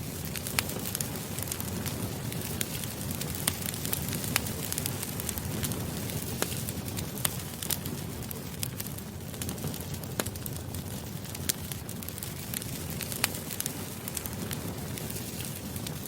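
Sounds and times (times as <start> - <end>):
bonfire crackling and popping: 0.0 - 16.0.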